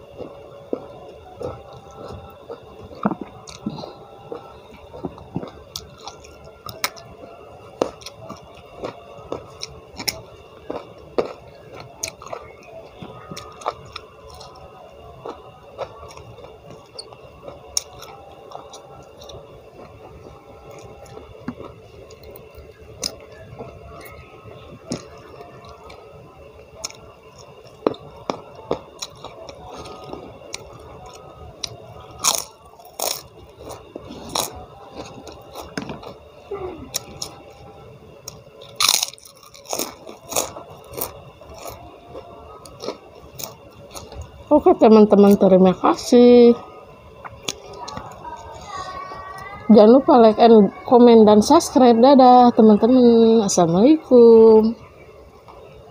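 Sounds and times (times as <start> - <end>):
person chewing food: 0.0 - 24.2, 26.6 - 37.6, 38.2 - 44.4, 47.2 - 48.5
crisp crunches: 38.3 - 44.2.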